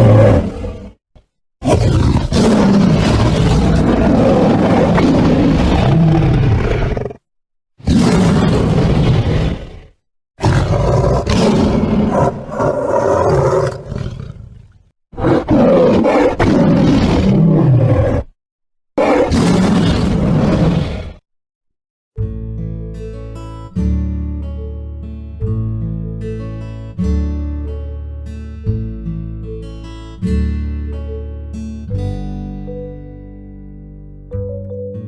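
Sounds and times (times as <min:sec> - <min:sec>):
tiger roaring: 0:00.0 - 0:01.0, 0:01.6 - 0:07.2, 0:07.8 - 0:18.3, 0:19.0 - 0:21.2.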